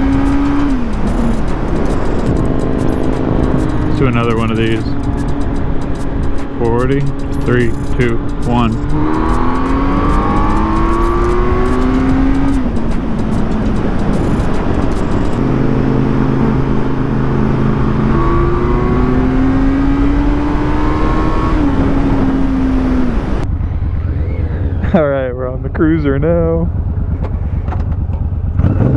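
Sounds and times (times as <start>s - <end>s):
wind rush: 0.0s - 26.0s
motorcycle engine pulling hard: 0.0s - 28.9s.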